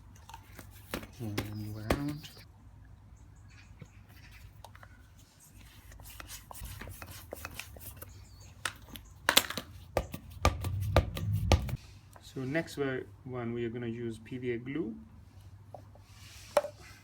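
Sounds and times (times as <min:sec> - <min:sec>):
ball handling clicks and knocks: 0:00.0 - 0:02.4, 0:06.1 - 0:11.4
steady low hum: 0:09.9 - 0:11.9.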